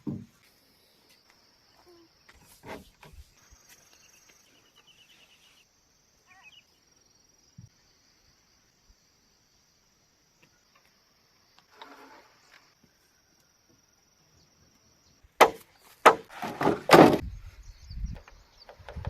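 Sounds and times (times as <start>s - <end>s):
high insect drone: 3.3s - 15.2s
blade chopping bamboo: 15.4s - 17.2s.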